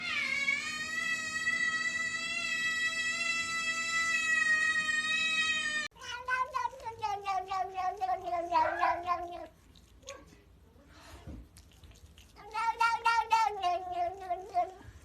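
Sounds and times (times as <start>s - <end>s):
cat crying and yowling: 0.0s - 9.5s, 12.4s - 14.8s.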